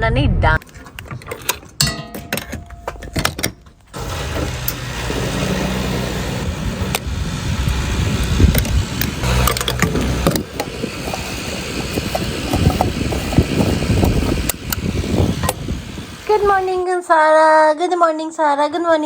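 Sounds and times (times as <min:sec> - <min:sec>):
car engine running: 0:04.0 - 0:16.6.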